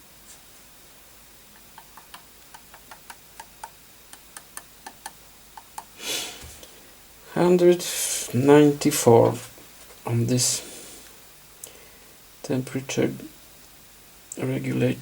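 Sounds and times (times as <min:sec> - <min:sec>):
small sharp irregular ticks: 0:01.5 - 0:06.0.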